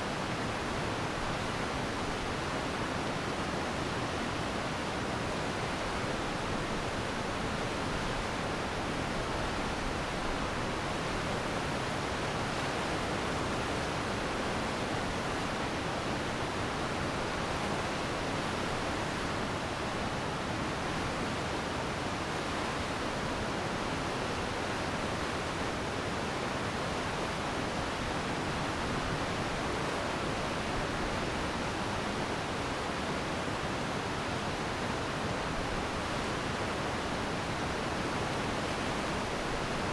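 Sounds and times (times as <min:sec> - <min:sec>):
stream rushing: 0:23.9 - 0:39.9.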